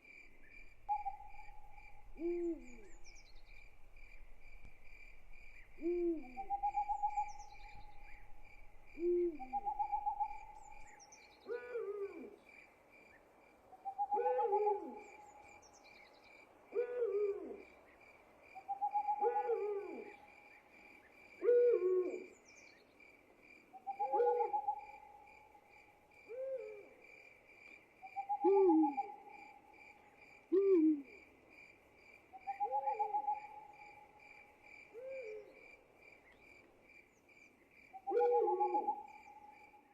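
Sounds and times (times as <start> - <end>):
crickets trilling: 0.0 - 12.2
owl hooting: 0.9 - 3.3, 5.6 - 8.3, 8.9 - 10.9, 11.5 - 12.4, 13.8 - 15.3, 16.7 - 17.6, 18.7 - 20.3, 21.4 - 22.4, 23.8 - 25.2, 26.3 - 26.9, 28.1 - 29.3, 30.5 - 31.2, 32.4 - 33.7, 35.0 - 35.5, 38.0 - 39.6.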